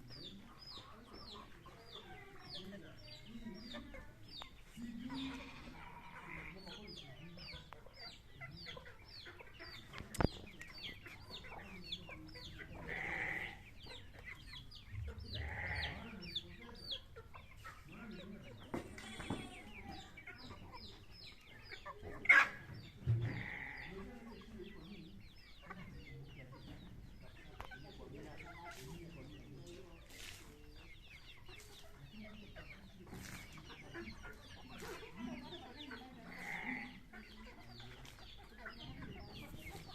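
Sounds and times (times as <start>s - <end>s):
chickens clucking: 0.0s - 39.9s
chicks cheeping: 0.0s - 39.9s.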